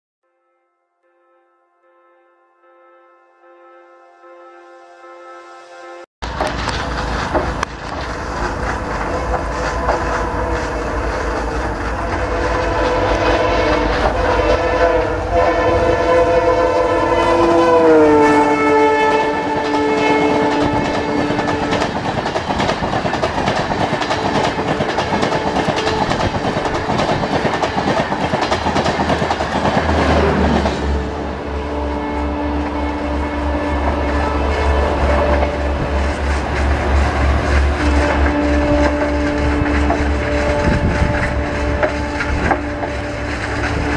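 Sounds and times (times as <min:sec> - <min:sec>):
train horn blast: 0:00.3 - 0:06.1, 0:07.7 - 0:22.1, 0:23.9 - 0:28.2, 0:29.9 - 0:43.9
train wheels clattering on rails: 0:06.2 - 0:14.8, 0:19.2 - 0:31.0, 0:34.6 - 0:43.9.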